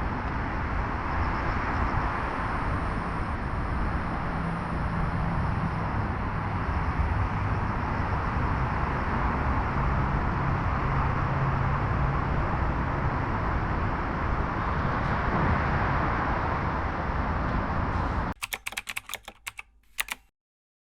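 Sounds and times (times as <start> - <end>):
sharp clicks: 18.4 - 20.3.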